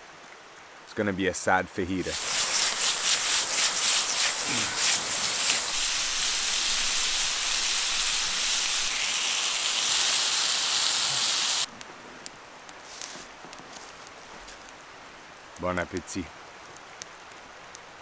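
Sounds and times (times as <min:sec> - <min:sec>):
chicken sizzling in a pan: 0:02.1 - 0:11.7.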